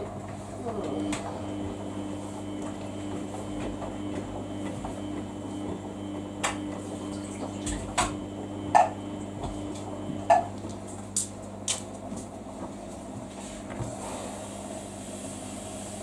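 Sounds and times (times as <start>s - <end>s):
washing machine humming: 0.0s - 16.0s
washing machine clicks and knocks: 6.4s - 12.0s.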